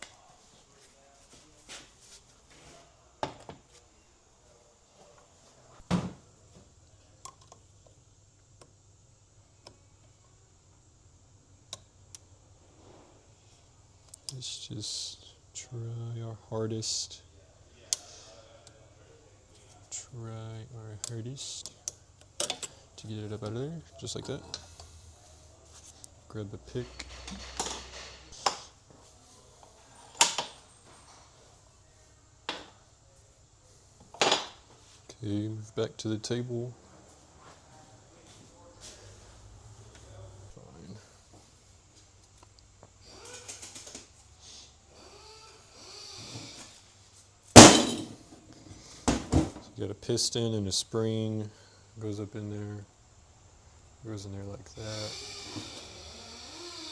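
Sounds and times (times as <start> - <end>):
heavy metal knock: 47.6 - 48.2.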